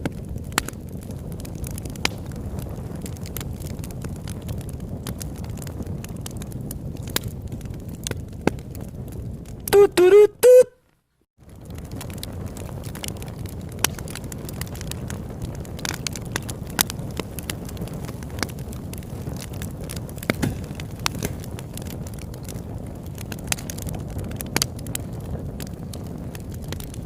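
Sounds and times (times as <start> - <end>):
campfire crackling: 0.0 - 27.0
fire low rush: 11.4 - 27.0.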